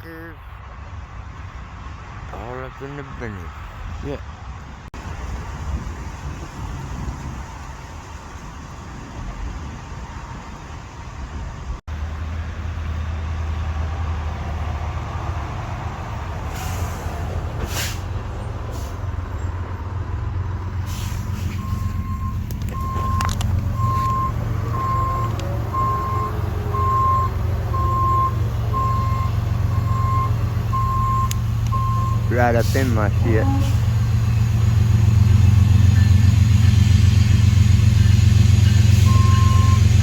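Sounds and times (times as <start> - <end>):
heavy vehicle engine running: 4.7 - 40.0
backup alarm beeping: 21.5 - 33.9, 38.0 - 39.9.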